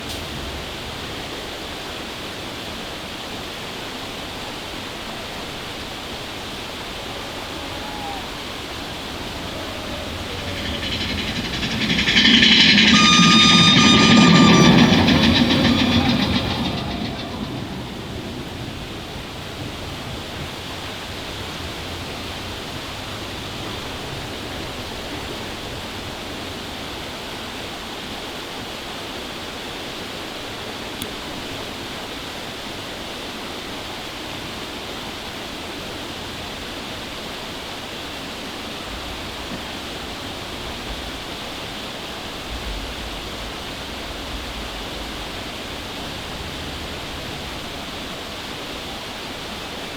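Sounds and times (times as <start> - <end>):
mine train rumbling: 5.4 - 27.7, 42.4 - 49.8.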